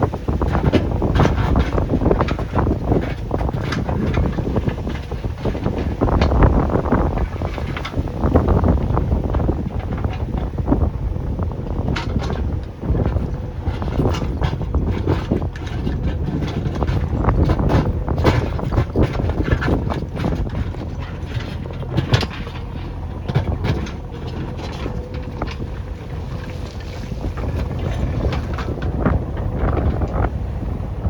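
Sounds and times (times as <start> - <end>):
diesel engine running: 0.0 - 31.0
machine knocks and clanks: 11.6 - 30.3.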